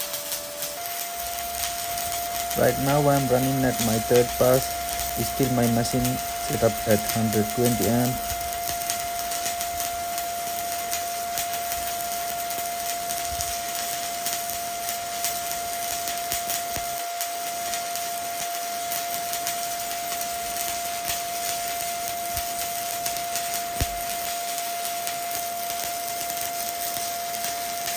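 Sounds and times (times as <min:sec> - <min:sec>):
steady high tone: 0:00.0 - 0:15.1
welding arc crackling: 0:00.0 - 0:27.9.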